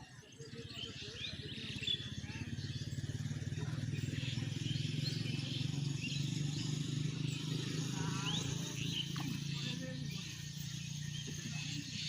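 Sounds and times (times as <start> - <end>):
birds chirping: 0.0 - 12.0
small engine running: 0.0 - 12.0.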